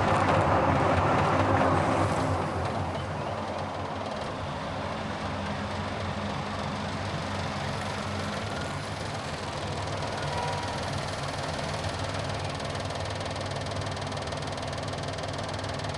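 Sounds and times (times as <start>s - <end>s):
passing traffic rushing: 0.0s - 12.3s
road noise: 0.0s - 15.9s.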